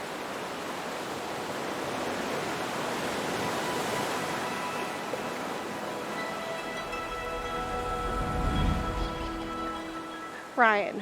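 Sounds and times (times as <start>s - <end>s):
ocean surf washing: 0.0s - 11.0s.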